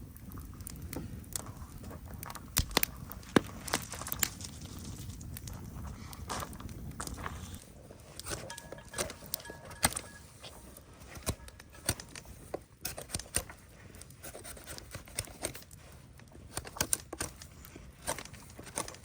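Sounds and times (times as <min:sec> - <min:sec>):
objects being handled and set down: 0:08.2 - 0:12.7.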